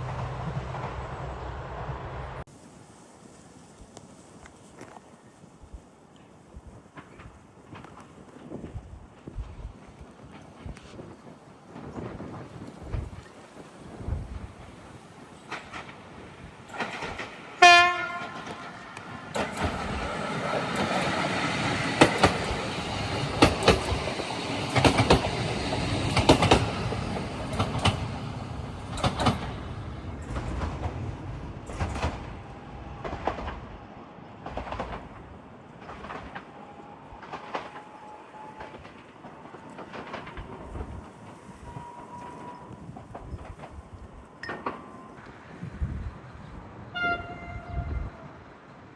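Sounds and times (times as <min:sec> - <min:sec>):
train wheels clicking on rail joints: 0:03.3 - 0:45.7
train horn blast: 0:17.6 - 0:19.0, 0:46.9 - 0:48.4.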